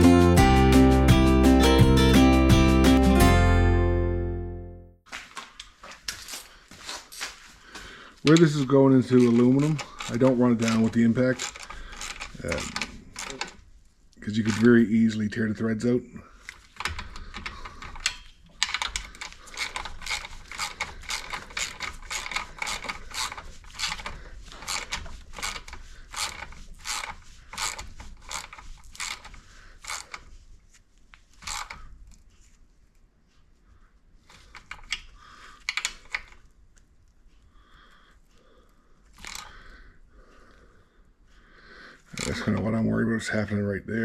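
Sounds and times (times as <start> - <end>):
ratchet wrench clicking: 16.8 - 30.2, 31.4 - 31.8, 39.2 - 39.5.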